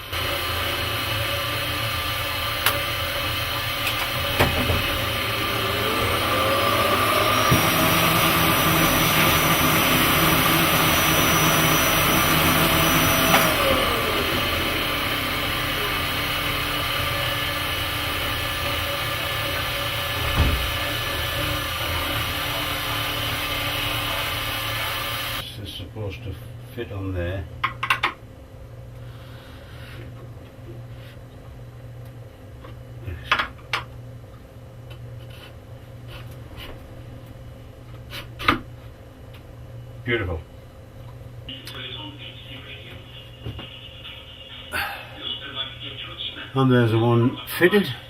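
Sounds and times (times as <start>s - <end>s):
machine spindle milling metal: 0.0s - 25.4s.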